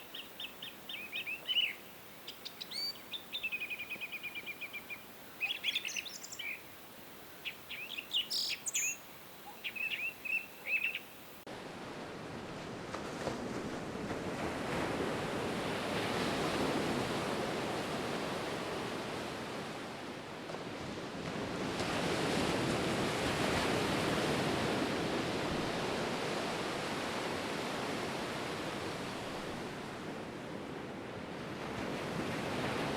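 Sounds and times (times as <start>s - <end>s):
small birds chirping: 0.0s - 11.4s
sea surf waves: 0.0s - 32.9s.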